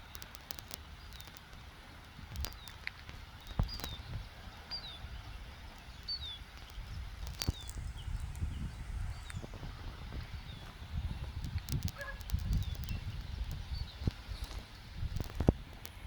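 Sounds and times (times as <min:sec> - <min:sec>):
sharp clicks: 0:00.0 - 0:04.0, 0:11.4 - 0:16.0
small bird chirping: 0:02.3 - 0:02.8, 0:03.4 - 0:15.5.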